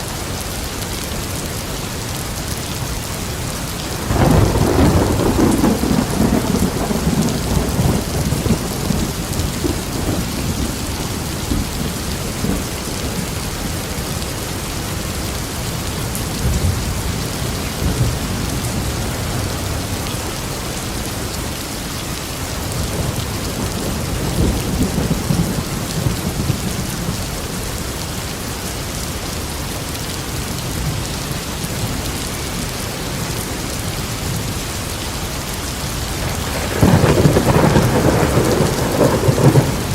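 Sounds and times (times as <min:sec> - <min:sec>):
heavy rain: 0:00.0 - 0:39.9
rolling thunder: 0:04.0 - 0:13.5, 0:36.2 - 0:39.9.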